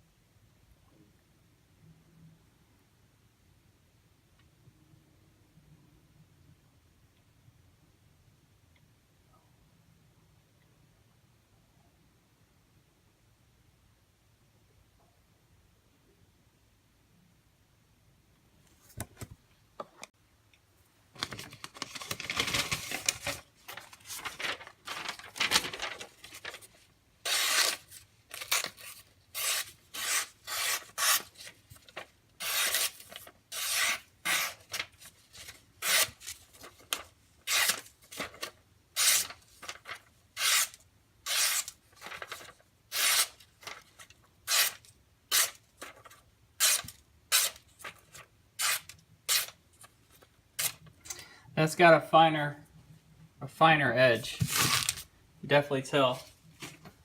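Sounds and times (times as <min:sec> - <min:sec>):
knife blade rasping strokes: 0:33.5 - 0:34.6.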